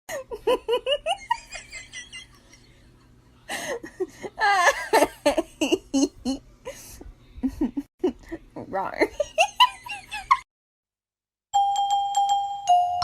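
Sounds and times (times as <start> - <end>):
person laughing: 0.1 - 10.4.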